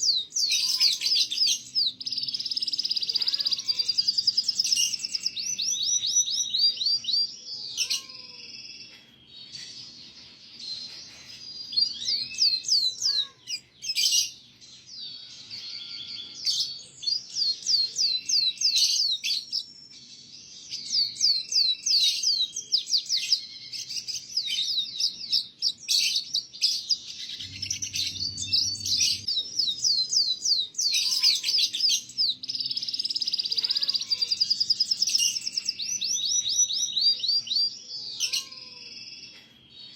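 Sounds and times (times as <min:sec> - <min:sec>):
canary singing trills: 0:00.0 - 0:39.9
low rumble: 0:27.2 - 0:29.3.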